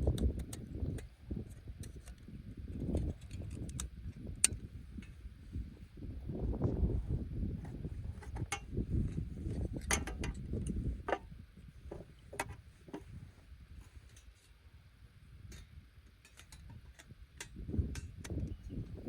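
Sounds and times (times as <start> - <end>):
low fluctuating rumble: 4.7 - 14.0.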